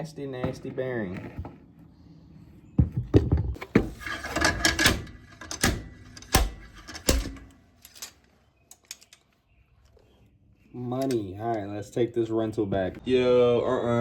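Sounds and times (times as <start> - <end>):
slide hammer metal clanks: 4.0 - 8.2.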